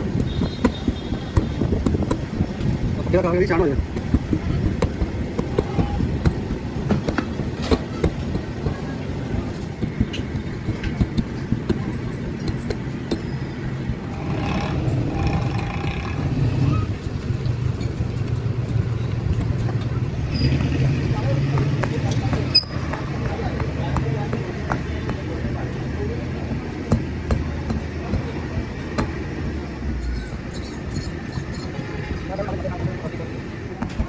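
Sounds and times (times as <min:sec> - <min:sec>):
scattered clicks and knocks: 0:00.0 - 0:34.0
engine running low rumble: 0:12.8 - 0:31.4.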